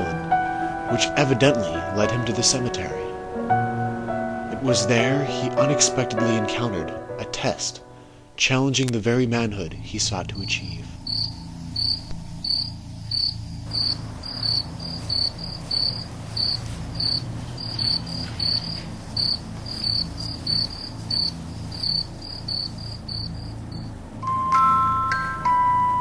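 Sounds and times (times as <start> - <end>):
low hum: 8.8 - 26.0
crickets chirping: 9.1 - 26.0.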